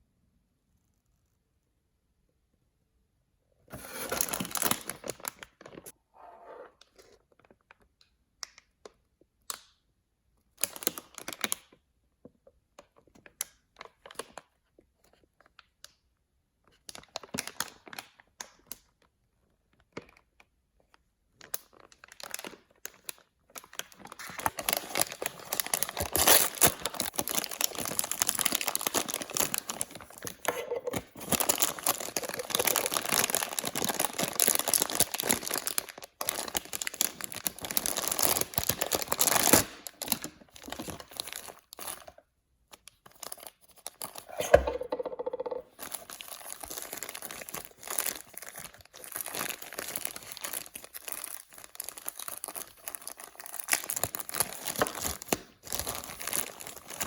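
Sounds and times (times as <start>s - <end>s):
plastic packaging tearing and crinkling: 3.7s - 5.9s, 21.4s - 44.9s, 45.7s - 57.0s.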